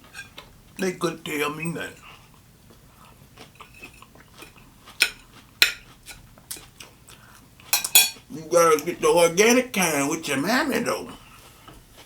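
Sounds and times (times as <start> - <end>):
utensil clinking against dish: 7.8 - 8.2.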